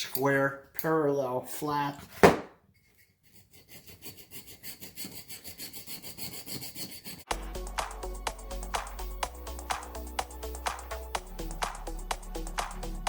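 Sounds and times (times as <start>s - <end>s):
hand rubbing putty: 2.7s - 7.3s
background music: 7.3s - 13.0s.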